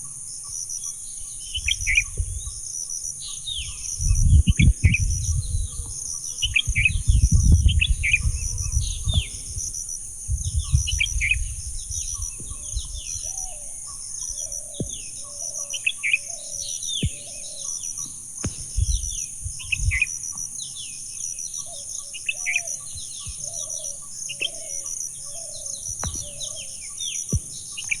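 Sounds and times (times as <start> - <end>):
birds chirping: 0.0 - 28.0
high insect drone: 0.0 - 28.0
low wind gusts: 1.4 - 2.7, 3.4 - 20.5.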